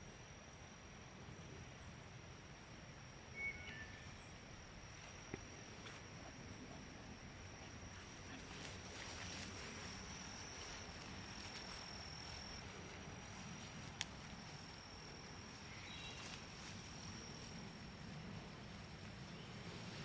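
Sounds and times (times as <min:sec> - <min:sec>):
high insect trill: 0:00.0 - 0:20.0
rustling through undergrowth: 0:04.2 - 0:20.0.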